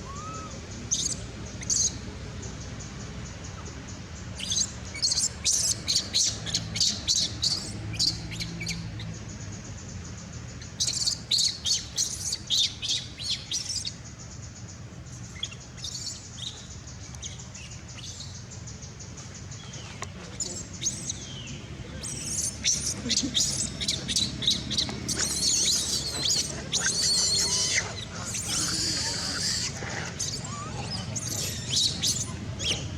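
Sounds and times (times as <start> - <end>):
baby monkey squeaking: 22.0 - 32.8.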